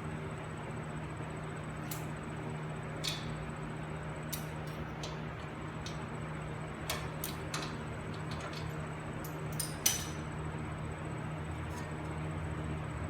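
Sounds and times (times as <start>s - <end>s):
steady low hum: 0.0s - 13.0s
hand tools clicking and tapping: 3.0s - 3.4s, 4.3s - 6.1s, 6.8s - 10.2s.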